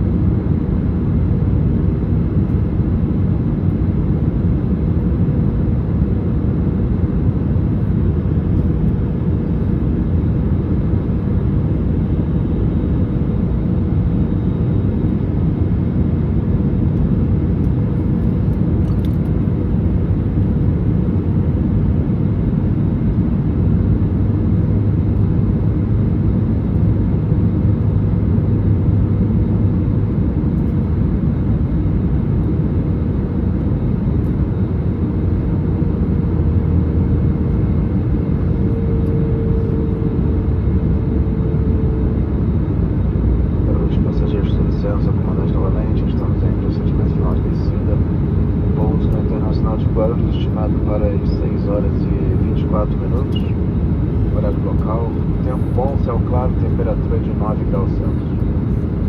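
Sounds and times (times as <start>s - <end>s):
airflow and engine rumble: 0.0s - 59.0s
faint steady hum: 32.4s - 59.0s
low drone: 36.5s - 59.0s.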